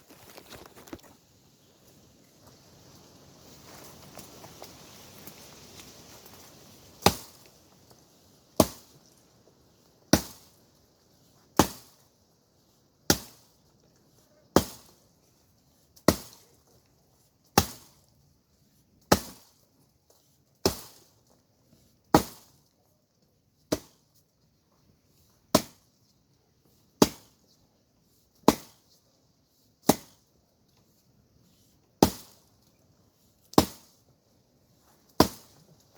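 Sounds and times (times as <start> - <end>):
axe chopping wood: 7.0 - 7.4, 8.6 - 9.0, 10.1 - 10.6, 11.6 - 12.0, 13.1 - 13.5, 14.6 - 15.0, 16.0 - 16.4, 17.6 - 18.0, 19.1 - 19.5, 20.6 - 21.0, 22.1 - 22.6, 23.7 - 24.0, 25.5 - 25.8, 27.0 - 27.4, 28.4 - 28.8, 29.8 - 30.2, 32.0 - 32.4, 33.6 - 34.0, 35.2 - 35.6.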